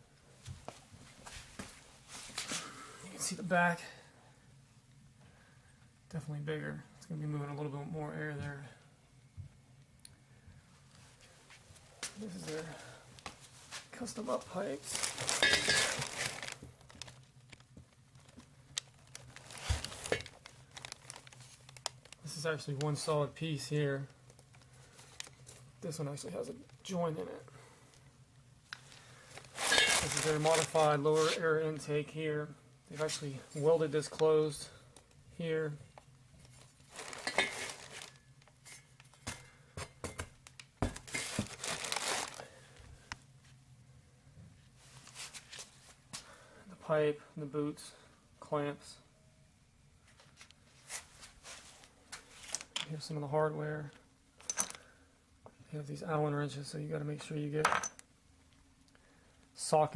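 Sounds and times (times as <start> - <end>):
parts handling rustling: 10.9 - 22.6, 28.7 - 31.5, 36.0 - 42.6, 54.4 - 54.9
packaging crinkling: 14.8 - 22.2, 28.8 - 31.4, 36.5 - 38.5, 40.5 - 42.6.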